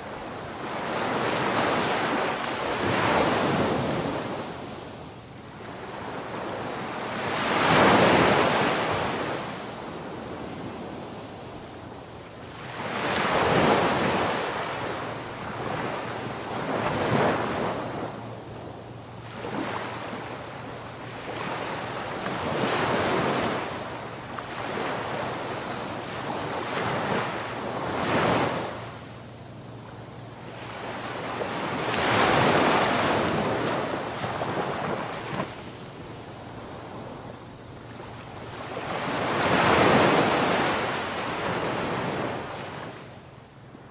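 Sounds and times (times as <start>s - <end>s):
ocean waves breaking: 19.2s - 29.0s, 29.8s - 43.1s.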